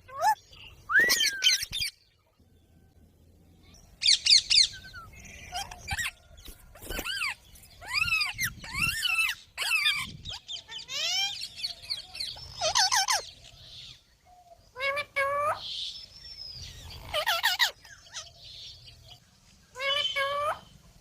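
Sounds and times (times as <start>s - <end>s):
parrot screeching and squawking: 0.1s - 1.9s, 4.0s - 13.4s, 17.0s - 18.3s, 19.8s - 20.6s.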